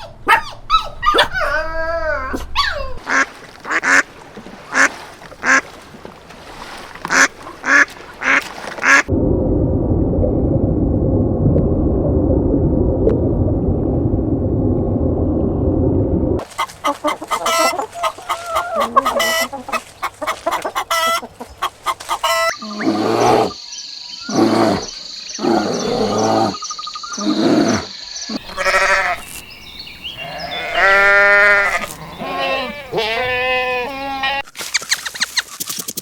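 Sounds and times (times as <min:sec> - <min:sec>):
animal clucking and clicking: 0:16.4 - 0:22.5
loud animal calls: 0:16.4 - 0:23.6, 0:24.2 - 0:34.5.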